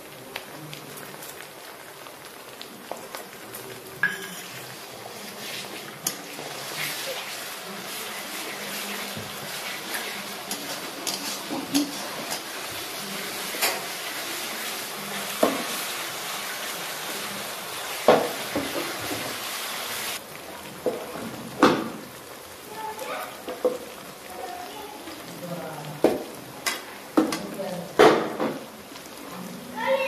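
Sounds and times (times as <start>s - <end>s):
onions sizzling in oil: 0.0s - 30.0s
spatula scraping a pan: 4.1s - 17.2s.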